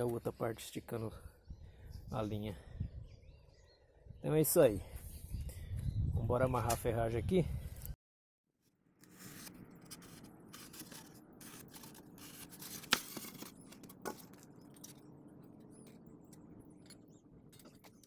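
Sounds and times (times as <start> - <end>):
hands scraping and rustling: 9.0 - 15.0.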